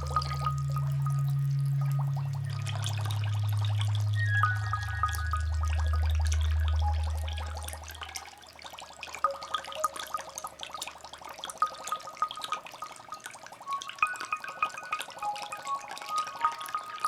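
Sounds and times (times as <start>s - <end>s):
low music drone: 0.0s - 8.4s
water bubbling and dripping: 0.0s - 17.0s.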